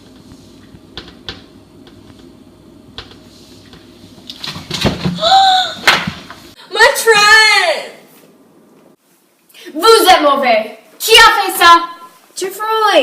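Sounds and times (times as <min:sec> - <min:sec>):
person crying out high-pitched: 0:05.2 - 0:05.8.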